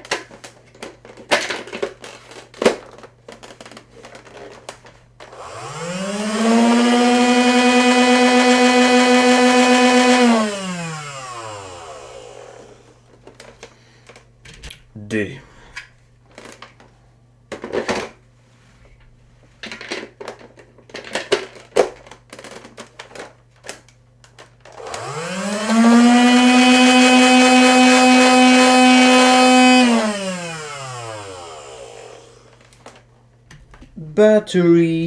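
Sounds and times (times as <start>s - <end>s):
toy blaster motors whining: 5.3s - 12.9s, 24.7s - 32.6s.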